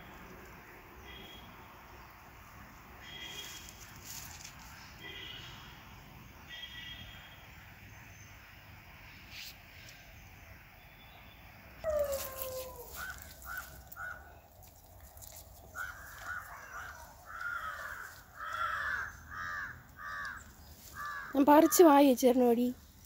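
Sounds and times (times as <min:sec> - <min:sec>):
bird cawing: 0:11.9 - 0:14.4, 0:15.7 - 0:21.9.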